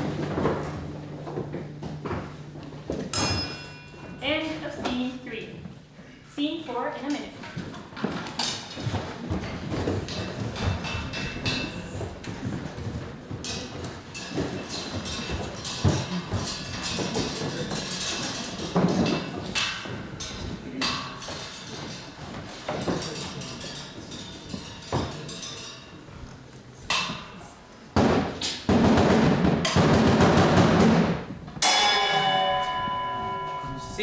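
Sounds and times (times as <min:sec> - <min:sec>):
ringing bell-like tone: 0:03.2 - 0:04.2, 0:31.6 - 0:34.0.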